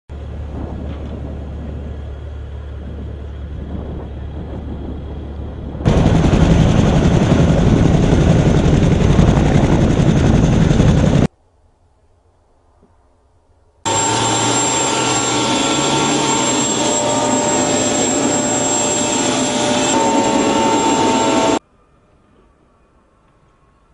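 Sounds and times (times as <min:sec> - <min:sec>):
helicopter rotor and engine: 0:00.2 - 0:11.3, 0:13.9 - 0:21.6.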